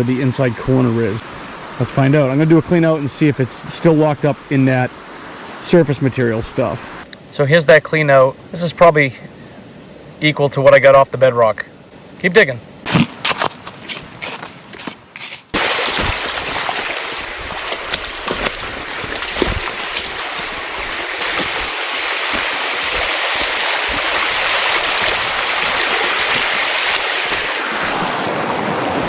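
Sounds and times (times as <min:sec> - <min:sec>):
rushing river water: 0:15.6 - 0:29.0.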